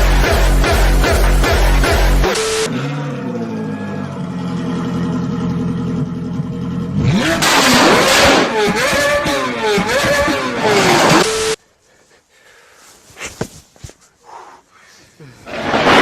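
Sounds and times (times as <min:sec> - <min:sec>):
music: 0:00.0 - 0:02.4
engine revving loudly: 0:00.0 - 0:06.0, 0:06.8 - 0:11.6.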